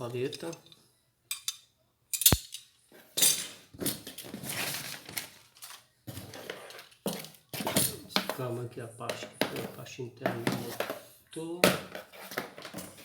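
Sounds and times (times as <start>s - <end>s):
metal parts clinking: 0.3s - 3.5s.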